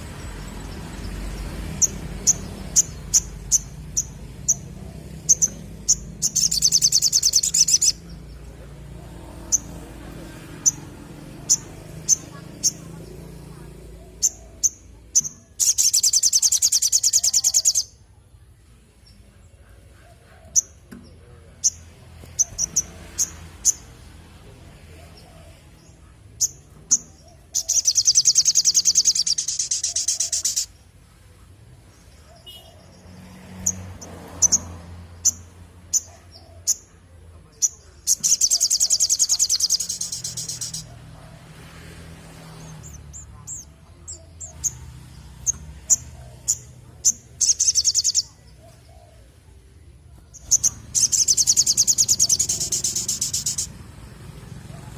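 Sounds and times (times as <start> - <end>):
bird chirping and trilling: 0.0 - 8.7, 9.3 - 18.0, 21.6 - 24.1, 26.4 - 30.8, 37.5 - 41.1, 42.5 - 49.0, 50.2 - 53.8.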